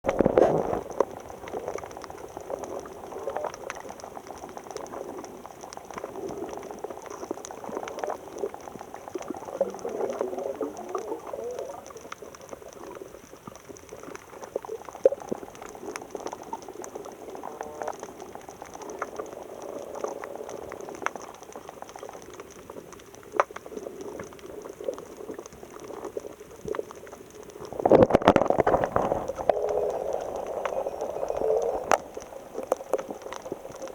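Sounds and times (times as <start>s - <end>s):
water bubbling and gurgling: 0.0s - 33.9s
rush of water: 7.2s - 13.1s, 27.6s - 33.9s.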